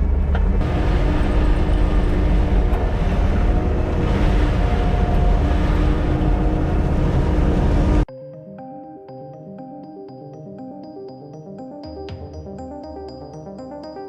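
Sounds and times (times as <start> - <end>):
diesel engine rumbling: 0.0 - 8.1.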